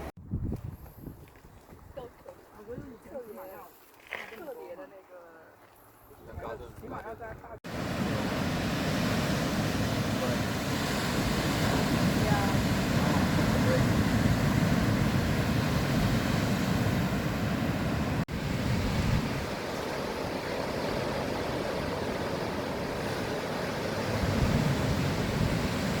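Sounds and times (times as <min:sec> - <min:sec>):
wind on microphone: 0:00.0 - 0:03.2, 0:06.2 - 0:26.0
ocean surf washing: 0:07.6 - 0:26.0.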